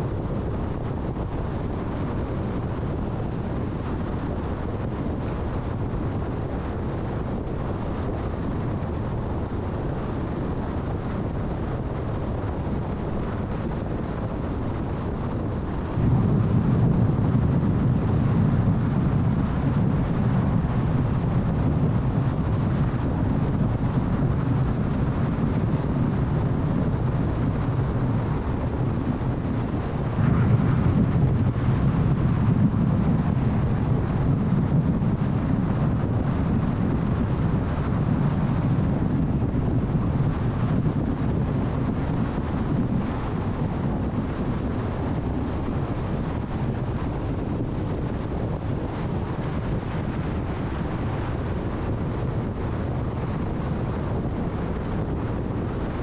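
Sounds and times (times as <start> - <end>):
tyre and wind noise: 0.0 - 56.0.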